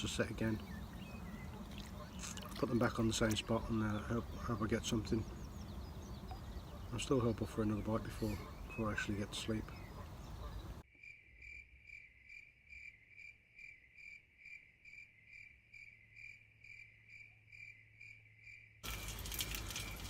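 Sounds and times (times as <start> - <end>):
cricket chirping: 11.0 - 20.0.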